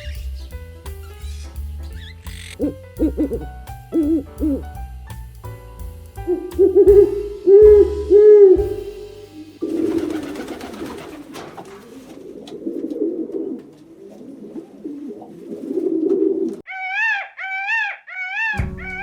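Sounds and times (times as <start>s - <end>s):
rising and falling animal calls: 16.7s - 19.0s.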